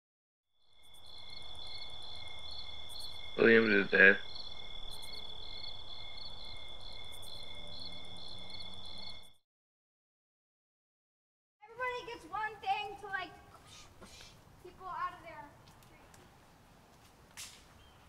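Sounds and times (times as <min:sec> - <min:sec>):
crickets chirping: 0:00.5 - 0:09.4.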